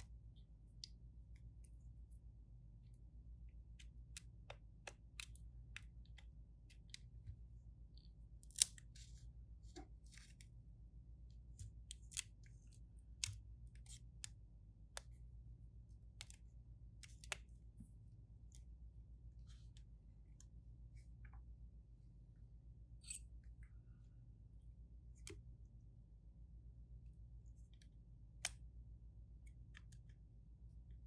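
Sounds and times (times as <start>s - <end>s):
faint low hum: 0.0s - 31.0s.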